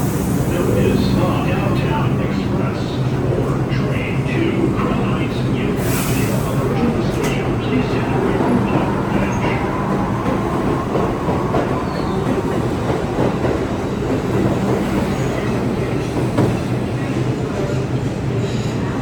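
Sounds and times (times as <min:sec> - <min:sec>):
subway train rail noise: 0:00.0 - 0:19.0.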